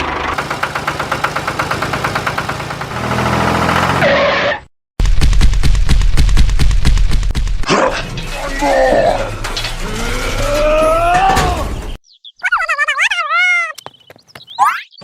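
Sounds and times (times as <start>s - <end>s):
engine-like hum: 0.0s - 4.1s
rapid mechanical clatter: 0.2s - 3.0s, 5.0s - 8.6s.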